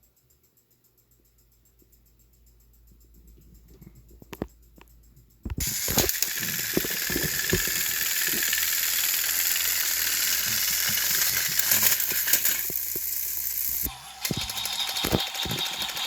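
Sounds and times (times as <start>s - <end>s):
clicking and rattling: 3.3s - 16.0s
toy train engine hissing: 5.6s - 16.0s.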